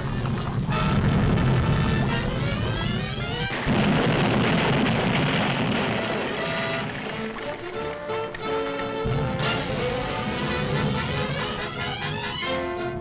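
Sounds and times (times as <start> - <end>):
volcanic eruption rumble: 0.0 - 7.5
dramatic orchestral music: 5.9 - 13.0.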